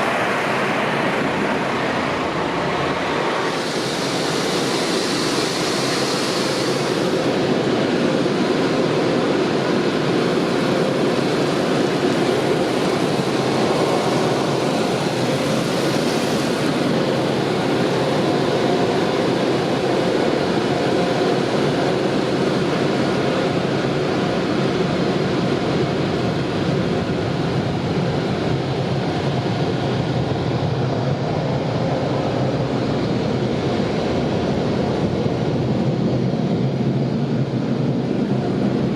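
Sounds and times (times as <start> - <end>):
car wash equipment roaring: 0.0 - 29.2.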